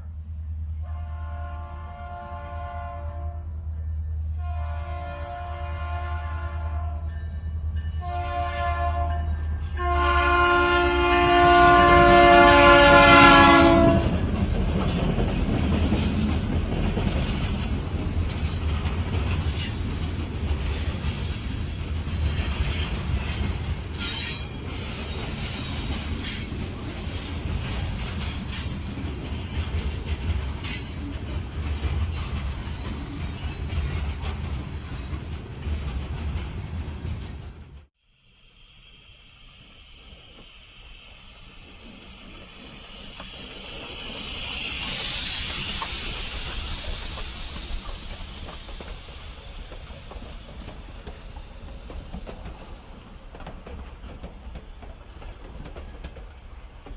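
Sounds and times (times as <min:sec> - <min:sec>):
train rumbling past: 0:00.0 - 0:56.9
locomotive air horn blasts: 0:00.8 - 0:03.6, 0:04.3 - 0:07.2, 0:08.0 - 0:14.3
wheels clicking over rail joints: 0:11.2 - 0:37.9, 0:40.0 - 0:56.9.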